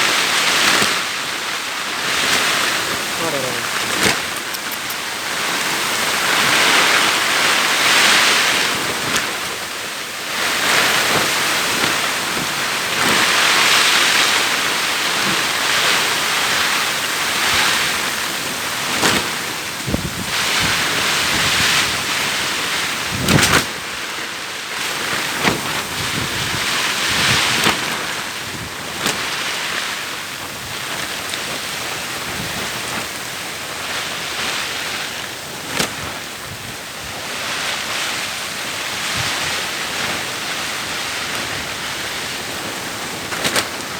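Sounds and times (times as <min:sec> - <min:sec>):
heavy rain: 0:00.0 - 0:43.9
wind buffeting microphone: 0:17.3 - 0:24.0, 0:24.8 - 0:43.9.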